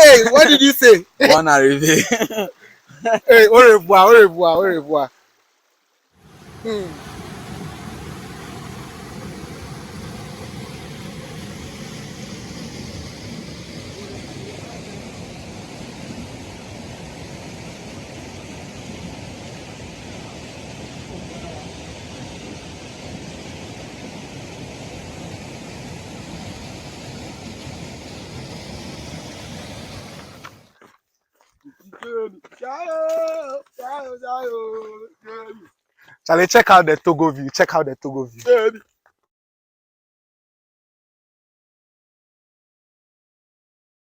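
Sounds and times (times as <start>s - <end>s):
stream rushing: 0.0s - 5.4s, 6.2s - 30.8s.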